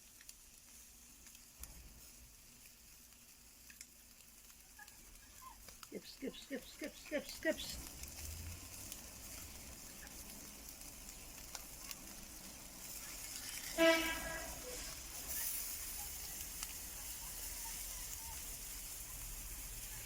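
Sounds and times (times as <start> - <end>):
chicken sizzling on fire: 0.0 - 20.0
short pitched honk: 13.7 - 14.6.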